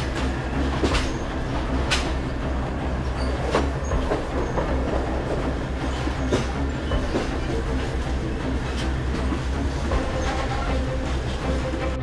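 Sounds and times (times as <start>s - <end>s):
train wheels rumbling on rails: 0.0s - 12.0s
sharp metallic clanks: 0.1s - 2.4s.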